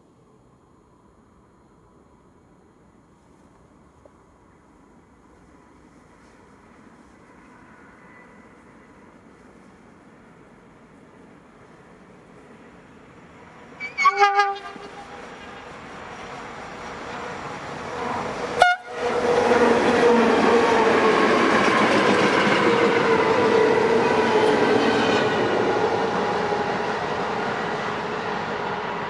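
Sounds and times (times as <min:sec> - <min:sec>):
train passing at speed: 0:00.0 - 0:29.0
train horn blasts: 0:13.8 - 0:15.2, 0:18.1 - 0:19.2.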